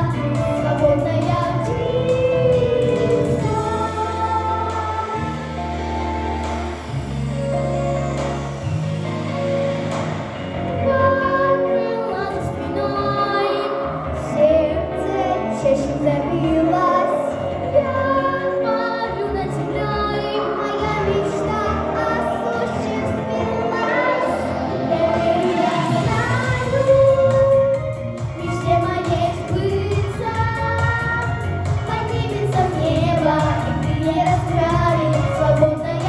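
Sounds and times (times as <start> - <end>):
girls singing a pop duet: 0.0 - 6.8, 10.7 - 36.0
instrumental accompaniment: 21.6 - 36.0.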